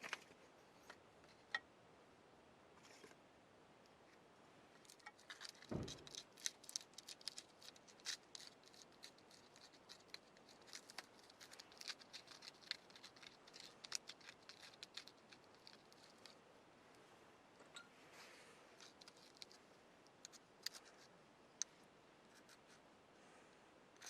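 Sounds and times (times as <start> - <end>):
low thump: 5.7 - 6.1.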